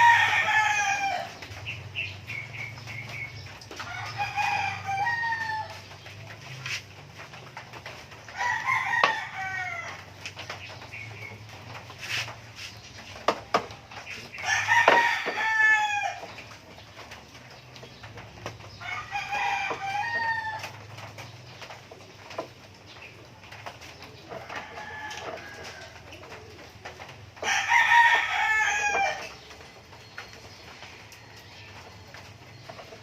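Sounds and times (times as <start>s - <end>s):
rooster crowing: 0.0s - 1.4s, 3.9s - 5.8s, 14.4s - 16.2s, 27.4s - 29.3s.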